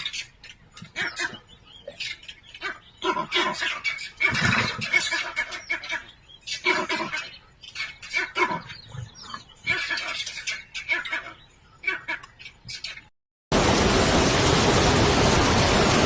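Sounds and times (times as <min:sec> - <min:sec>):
animal cries: 0:00.8 - 0:12.3.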